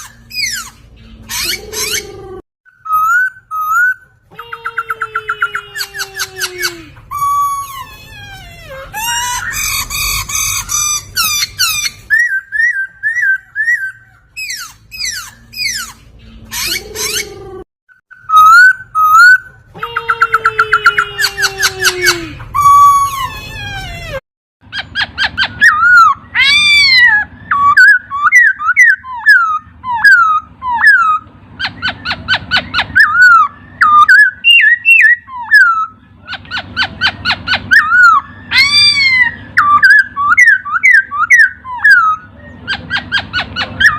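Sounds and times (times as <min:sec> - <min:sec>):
bird singing whistled song: 0:02.7 - 0:04.0, 0:09.1 - 0:17.3, 0:18.0 - 0:19.5, 0:24.7 - 0:36.0, 0:37.7 - 0:43.9.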